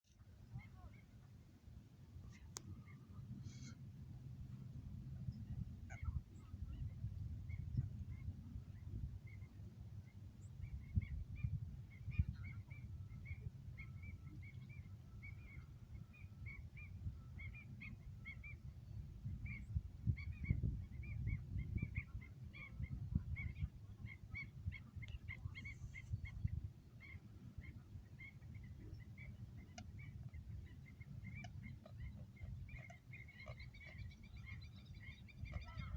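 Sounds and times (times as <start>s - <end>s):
birds chirping: 21.8s - 35.9s.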